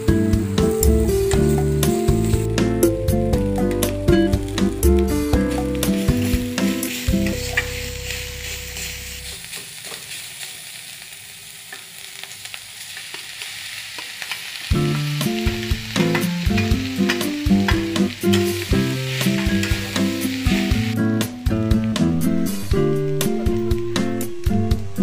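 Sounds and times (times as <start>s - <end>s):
background music: 0.0s - 9.3s, 14.7s - 25.0s
food sizzling in a wok: 0.0s - 24.2s.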